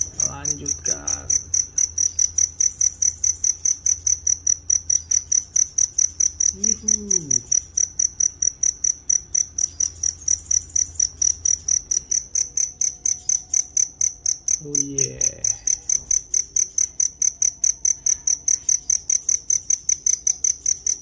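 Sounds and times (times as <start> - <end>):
cricket chirping: 0.0 - 21.0
short falling vocal sound: 6.6 - 7.5.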